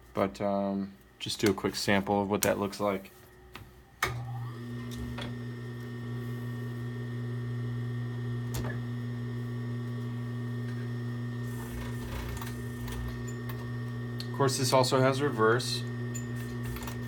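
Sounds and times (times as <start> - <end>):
industrial sewing machine running: 9.8 - 17.0.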